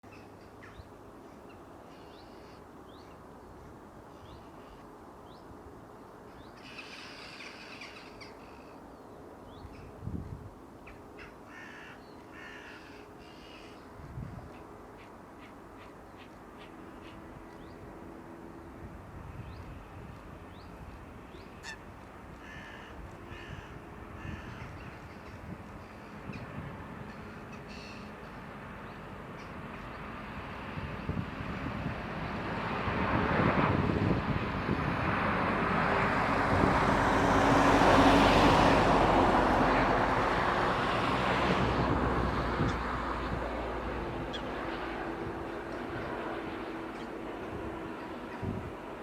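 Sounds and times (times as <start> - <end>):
birds calling: 0.1 - 3.2, 6.3 - 9.9, 10.8 - 17.8, 20.5 - 30.1
jet airliner passing: 9.6 - 49.0.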